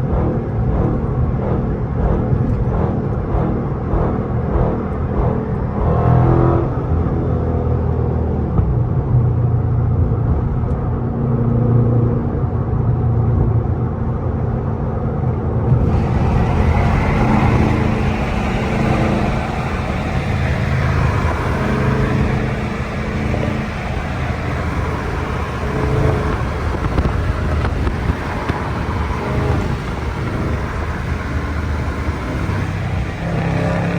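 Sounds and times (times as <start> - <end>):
car engine running: 15.7 - 33.9
rushing noise: 15.7 - 33.9.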